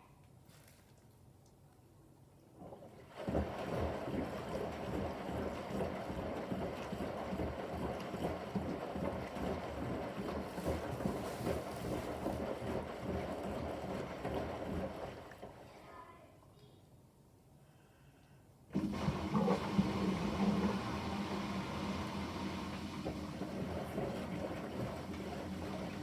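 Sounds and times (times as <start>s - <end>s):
water sloshing and splashing: 2.6s - 15.7s, 18.8s - 26.0s
washing machine drum turning: 18.7s - 26.0s.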